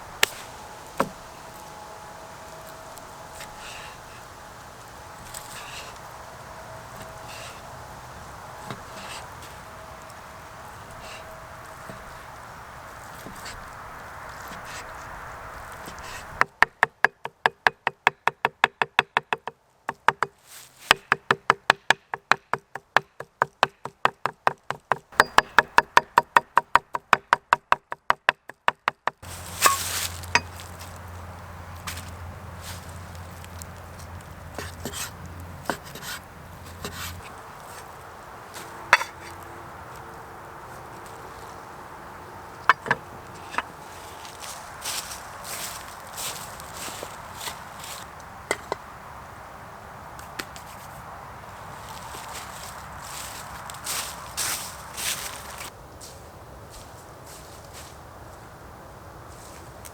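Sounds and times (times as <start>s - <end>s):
low hum: 0.0s - 16.4s.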